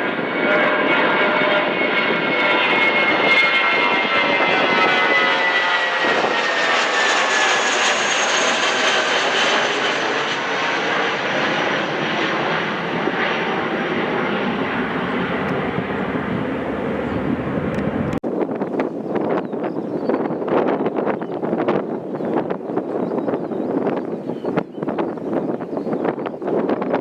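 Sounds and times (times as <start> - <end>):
jet airliner engines passing: 0.0 - 27.0.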